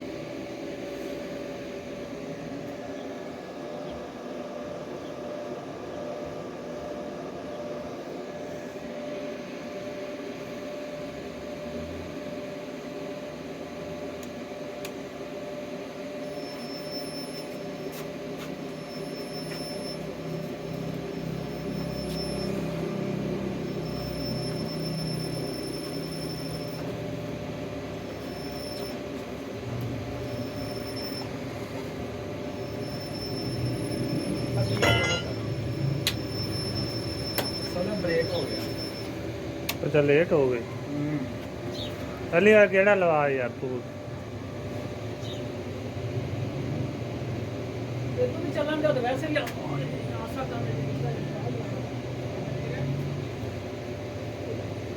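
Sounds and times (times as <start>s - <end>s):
faint high whine: 0.0s - 41.2s
machinery droning: 0.0s - 54.9s.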